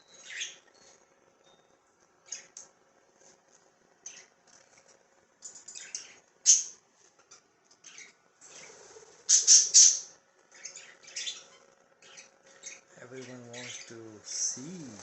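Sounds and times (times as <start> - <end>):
budgerigars chirping and squawking: 0.2 - 0.6, 5.7 - 6.7, 7.8 - 14.8.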